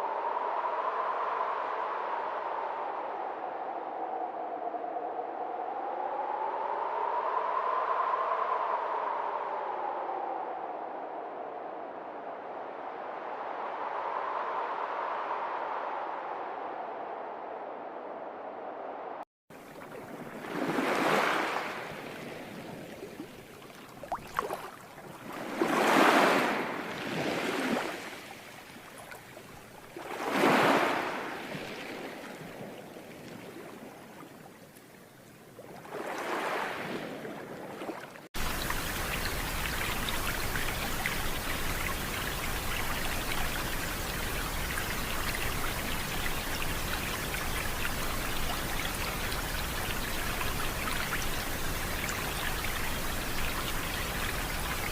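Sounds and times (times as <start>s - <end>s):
rushing water swells: 0.0s - 54.9s
falling water rushing: 19.5s - 31.7s, 38.3s - 54.9s.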